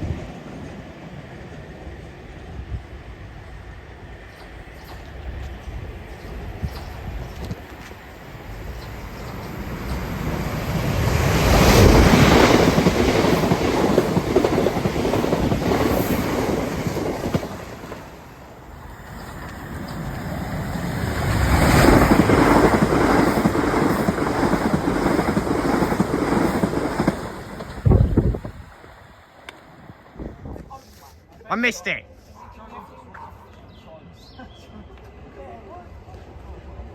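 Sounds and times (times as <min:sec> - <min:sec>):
train rushing past: 0:00.0 - 0:30.6
wind buffeting microphone: 0:02.4 - 0:18.0, 0:19.3 - 0:29.2, 0:29.8 - 0:30.8.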